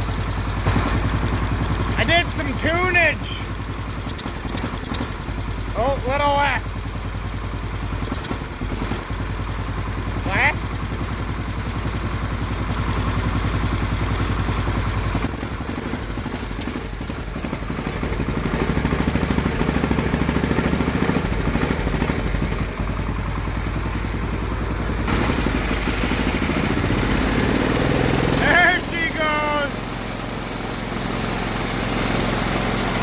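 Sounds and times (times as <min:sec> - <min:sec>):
small engine running unevenly: 0:00.0 - 0:33.0.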